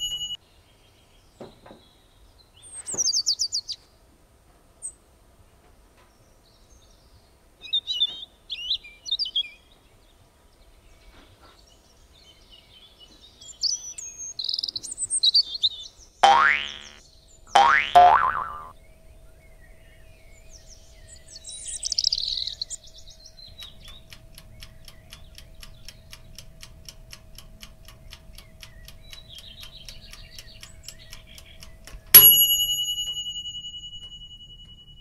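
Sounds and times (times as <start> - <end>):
bell ding: 0.0 - 0.4, 32.2 - 35.0
high chirp: 0.0 - 0.4, 16.2 - 18.7, 20.4 - 24.0, 28.5 - 35.0
clock-like ticking: 23.4 - 32.9.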